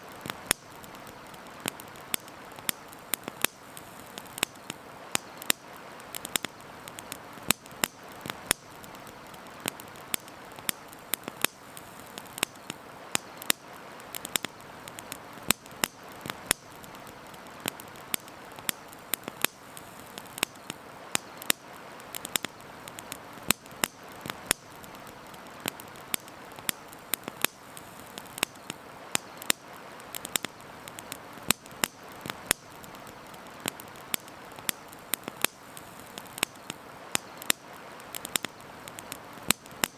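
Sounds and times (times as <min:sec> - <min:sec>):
campfire crackling: 0:00.0 - 0:39.9
fire hissing: 0:00.0 - 0:39.9
fire popping and snapping: 0:00.0 - 0:39.9.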